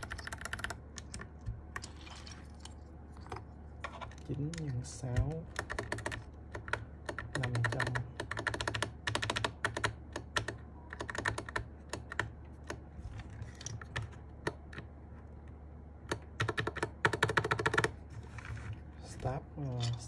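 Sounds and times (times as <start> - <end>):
mechanical keyboard clicking: 0.0 - 1.3, 4.4 - 12.8, 16.1 - 18.0.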